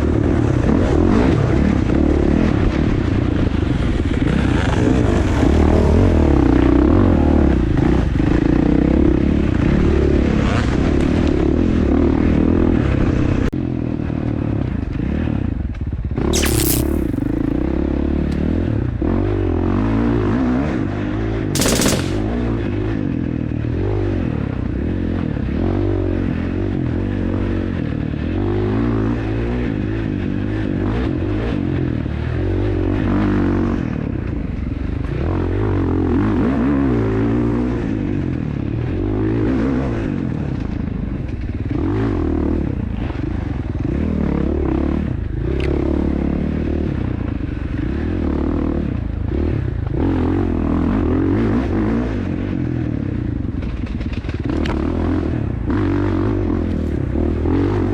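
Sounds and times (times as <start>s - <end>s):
dirt bike engine revving: 16.4s - 17.7s.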